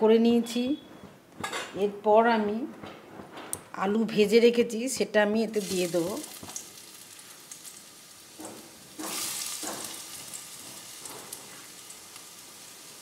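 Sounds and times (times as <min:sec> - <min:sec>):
potatoes sizzling in hot oil: 0:05.4 - 0:13.0.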